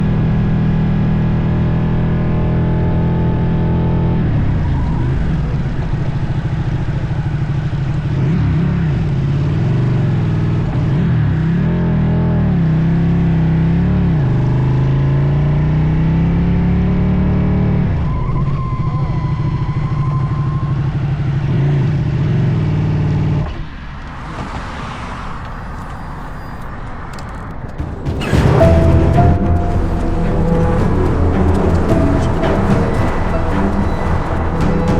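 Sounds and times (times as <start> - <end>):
road and wind noise: 0.0 - 34.9
motorcycle engine rumbling: 27.1 - 34.9
loud sudden sound: 27.8 - 34.9.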